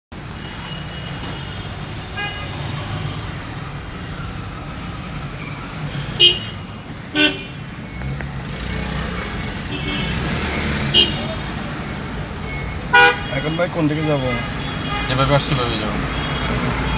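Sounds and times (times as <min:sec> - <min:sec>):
car engine and road rumble: 0:00.1 - 0:16.9
car horn honks: 0:06.0 - 0:07.6, 0:09.7 - 0:11.4, 0:12.9 - 0:16.9.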